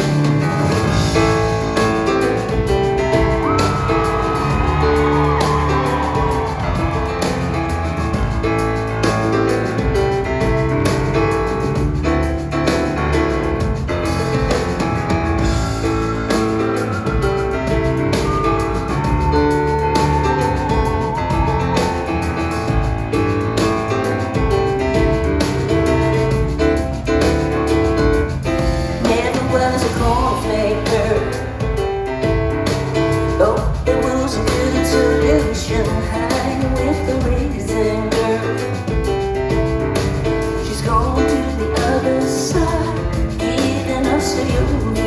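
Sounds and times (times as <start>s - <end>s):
live pop-rock band with piano: 0.0s - 45.0s
woman singing: 29.0s - 31.7s, 33.4s - 39.0s, 40.6s - 45.0s.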